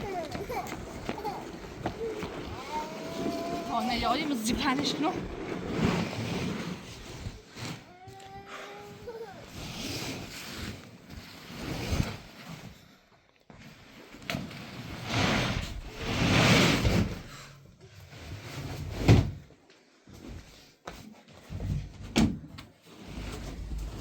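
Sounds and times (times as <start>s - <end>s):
scraping and rustling: 0.0s - 12.8s.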